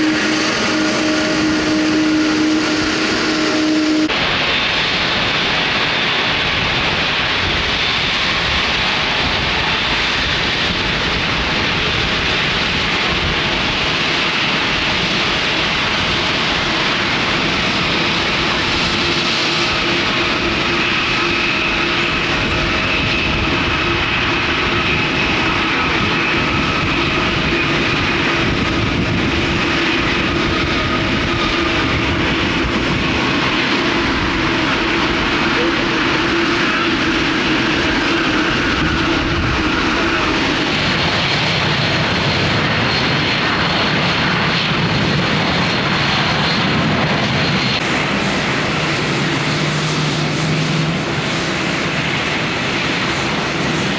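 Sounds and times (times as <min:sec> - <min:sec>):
jet engines running: 0:00.0 - 0:53.9
whining engine tones: 0:00.0 - 0:53.9.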